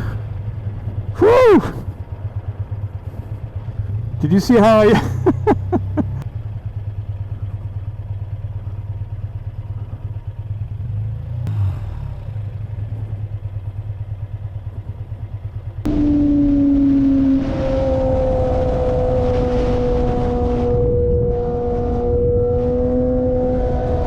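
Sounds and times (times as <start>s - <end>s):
motorcycle engine running: 0.0s - 19.2s.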